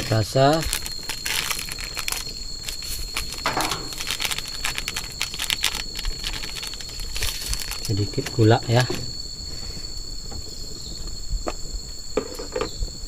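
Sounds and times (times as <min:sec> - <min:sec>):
plastic packets crinkling: 0:00.0 - 0:08.8
high-pitched insect drone: 0:00.0 - 0:13.0.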